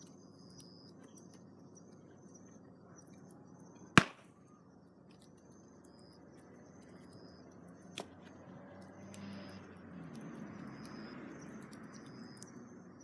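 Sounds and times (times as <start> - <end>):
campfire wood popping: 4.0 - 4.2.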